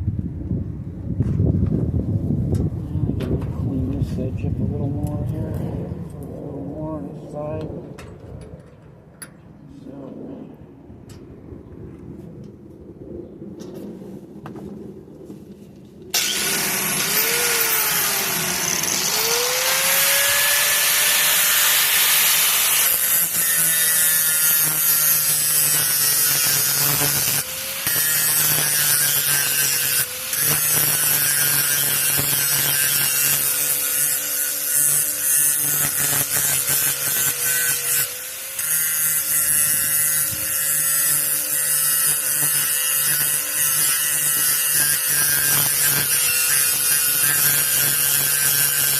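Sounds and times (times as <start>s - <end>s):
electric grinder grinding steel: 16.2s - 48.9s.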